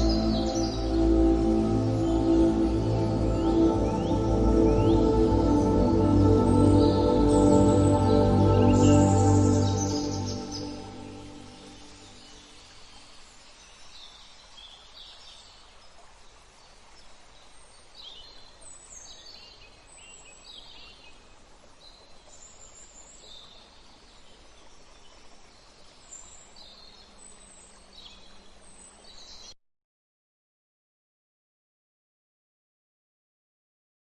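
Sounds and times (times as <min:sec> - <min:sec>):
birds chirping: 0:00.0 - 0:13.2
outdoor ambient hiss: 0:00.0 - 0:29.6.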